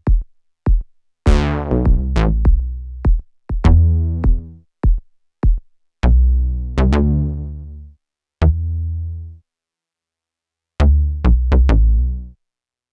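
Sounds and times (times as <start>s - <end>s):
plucked synth bass notes: 1.3s - 3.0s, 3.6s - 4.6s, 6.0s - 7.8s, 8.4s - 9.4s, 10.8s - 12.4s.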